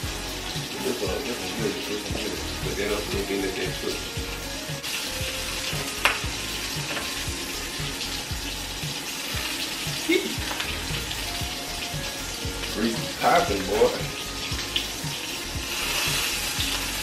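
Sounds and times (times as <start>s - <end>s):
background music with low beat: 0.0s - 17.0s
food sizzling in pans: 0.0s - 17.0s.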